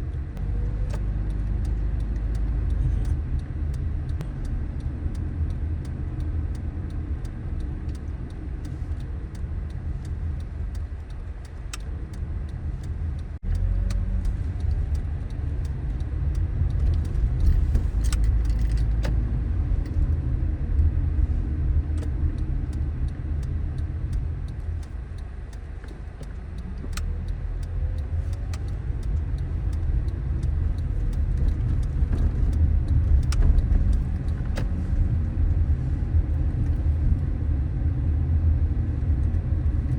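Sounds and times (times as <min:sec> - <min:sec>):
car engine and road rumble: 0:00.0 - 0:39.9
faint clicks and rattles: 0:00.4 - 0:20.9, 0:21.8 - 0:37.2.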